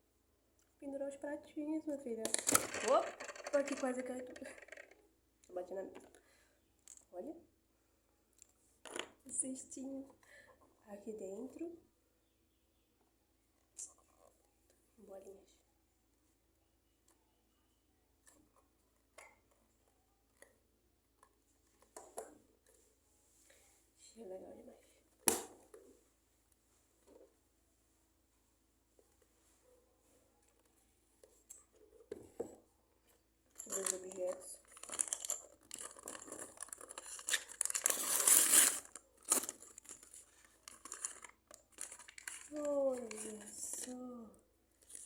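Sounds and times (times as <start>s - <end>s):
plastic toy pieces clicking: 2.2s - 5.0s
plastic packaging crinkling and tearing: 33.6s - 43.9s.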